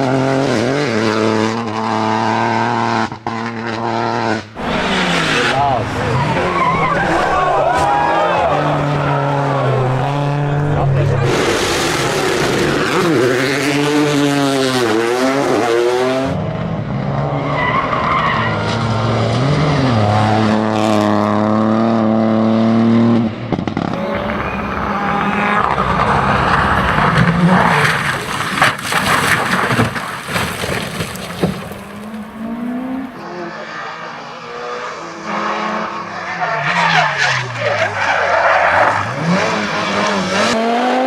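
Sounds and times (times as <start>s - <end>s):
rally car engines at full throttle: 0.0s - 41.0s
tyres skidding on loose ground: 4.6s - 15.0s, 23.7s - 34.6s, 35.9s - 40.6s.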